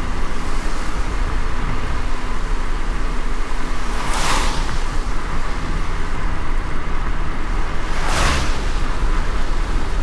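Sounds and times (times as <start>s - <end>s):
rain hiss on wet road: 0.0s - 10.0s
road and tyre rumble: 0.0s - 10.0s
brief whoosh: 7.9s - 8.9s.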